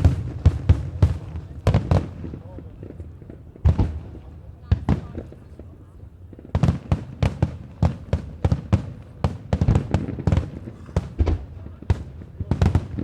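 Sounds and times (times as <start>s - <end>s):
fireworks bangs with echo: 0.0s - 13.0s.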